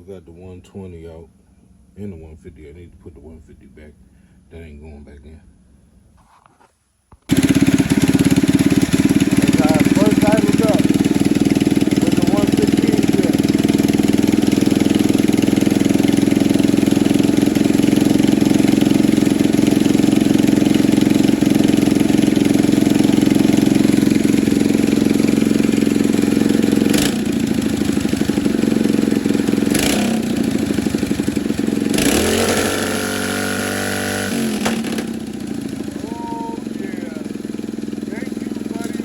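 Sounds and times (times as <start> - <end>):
small engine idling: 7.3 - 39.0.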